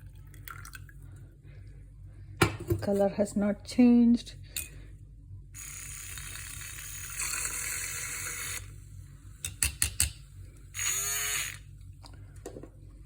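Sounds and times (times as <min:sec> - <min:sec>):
liquid pouring into cup: 0:00.0 - 0:01.2.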